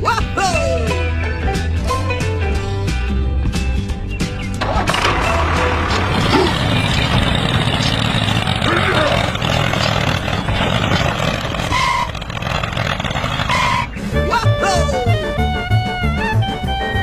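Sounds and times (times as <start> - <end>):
vehicle engine running: 4.5 - 14.2.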